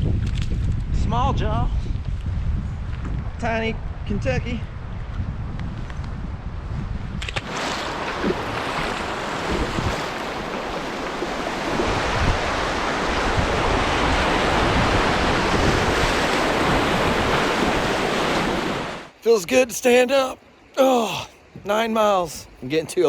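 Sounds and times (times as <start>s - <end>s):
wind buffeting microphone: 0.0s - 19.1s
creek water rushing: 7.4s - 22.4s.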